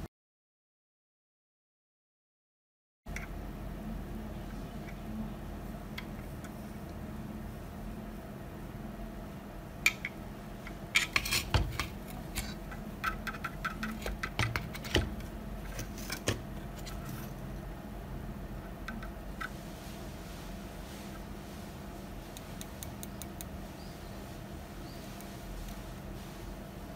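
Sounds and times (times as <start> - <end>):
steady low hum: 3.1 - 26.9.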